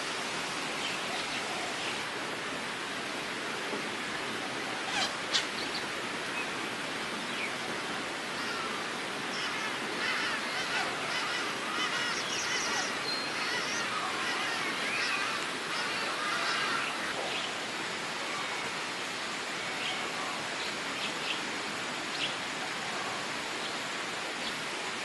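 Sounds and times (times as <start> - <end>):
birds chirping and calling: 9.4 - 17.5.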